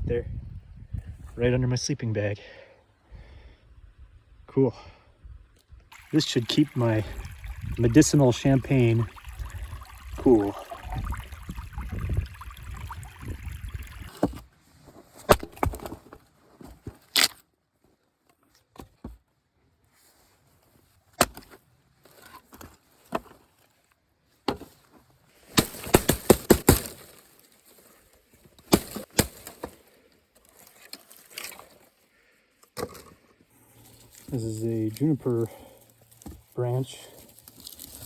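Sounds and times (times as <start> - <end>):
dry sticks snapping: 28.6 - 29.8.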